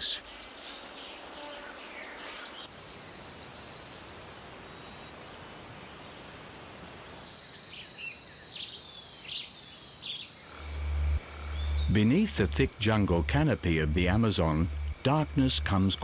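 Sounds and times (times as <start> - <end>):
bird calls and chirps: 0.0 - 6.3, 7.3 - 10.5
steady background hiss: 0.0 - 16.0
high insect drone: 6.9 - 16.0
low hum: 10.5 - 16.0.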